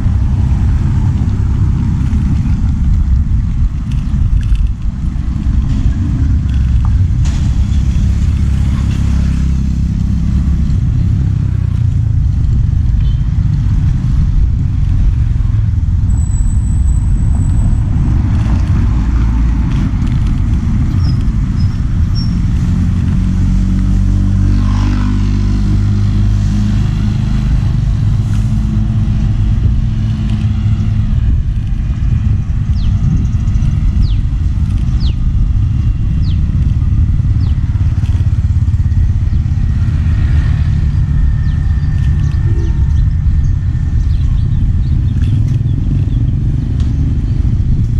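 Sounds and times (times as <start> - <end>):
vehicle engine rumble: 0.0 - 47.9.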